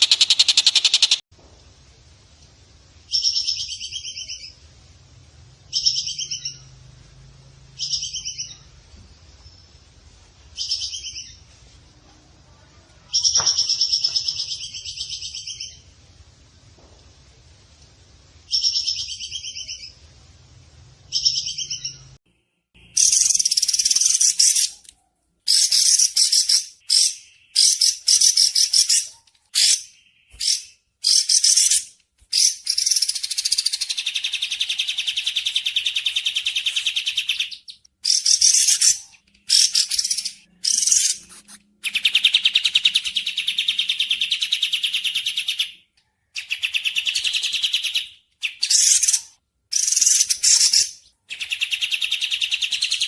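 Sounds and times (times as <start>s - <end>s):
songbirds chirping and trilling: 5.6s - 11.7s, 21.0s - 22.2s, 22.8s - 53.0s.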